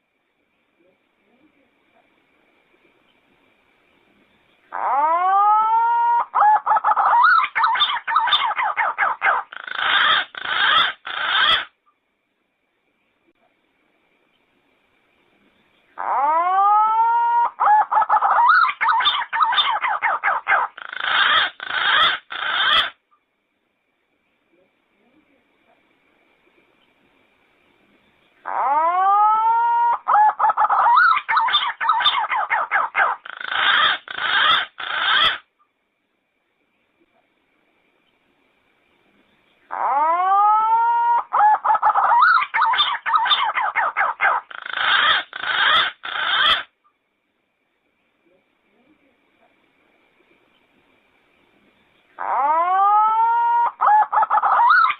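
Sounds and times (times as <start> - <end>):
pigeon whistling song: 28.6 - 35.4, 39.8 - 46.7, 52.3 - 54.9
pigeon whistled song: 52.4 - 54.9.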